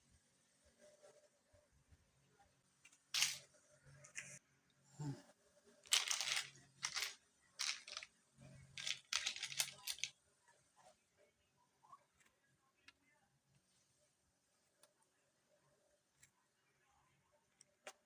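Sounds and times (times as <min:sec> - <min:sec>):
faint low hum: 0:00.0 - 0:18.0
rustling crinkling handling: 0:05.9 - 0:08.1, 0:08.8 - 0:10.1.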